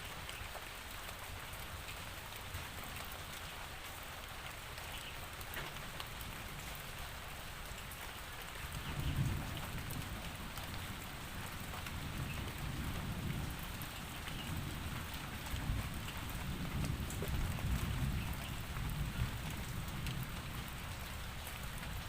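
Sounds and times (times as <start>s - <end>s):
steady rain falling: 0.0s - 22.0s
distant thunder rumbling: 8.7s - 21.0s.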